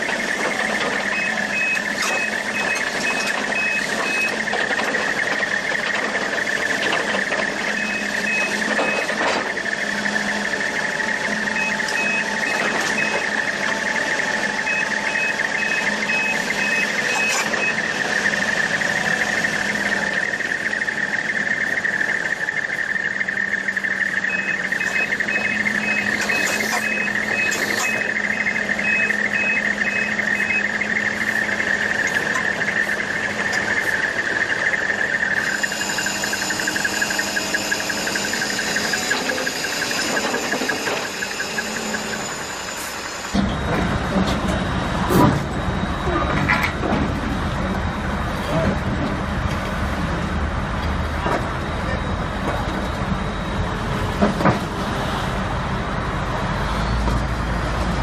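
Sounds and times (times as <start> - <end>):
reversing alarm beeping: 0.0 - 48.8, 51.0 - 55.4
heavy machinery running: 0.0 - 58.0.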